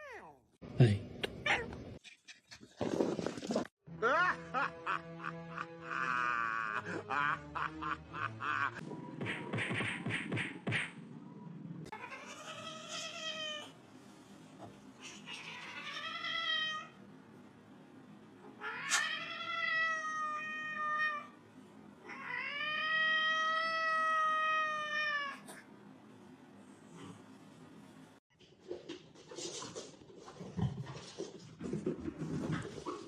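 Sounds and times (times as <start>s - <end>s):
cat yowling: 1.4s - 1.8s, 18.6s - 21.3s.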